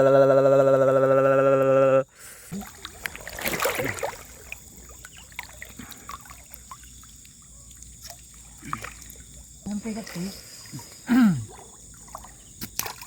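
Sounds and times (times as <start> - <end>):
water splashing: 2.5 - 13.0
water dripping: 2.6 - 13.0.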